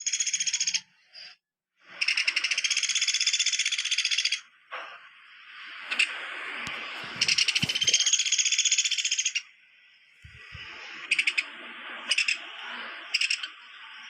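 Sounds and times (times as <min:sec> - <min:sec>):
woodpecker rattling call: 0:00.0 - 0:00.8, 0:02.0 - 0:04.4, 0:07.0 - 0:09.4, 0:10.3 - 0:11.5, 0:13.1 - 0:13.5.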